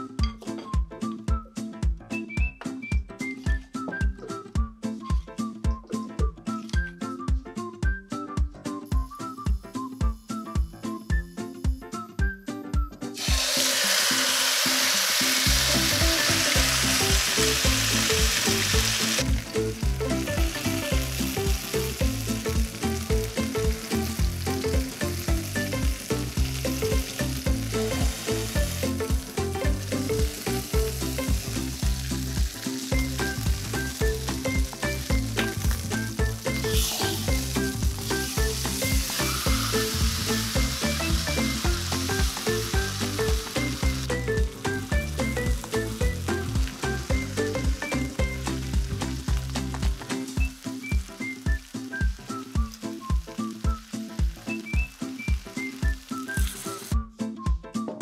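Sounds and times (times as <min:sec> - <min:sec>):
background music: 0:00.0 - 0:58.0
chicken sizzling in oil: 0:13.2 - 0:57.0.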